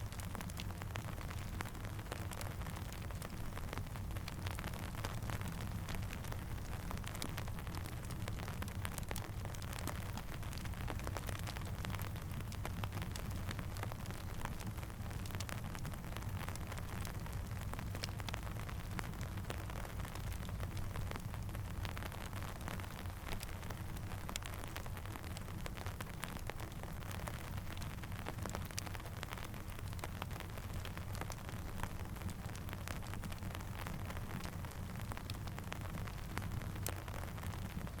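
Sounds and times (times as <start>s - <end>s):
campfire crackling: 0.0s - 38.0s
steady rain: 0.0s - 38.0s.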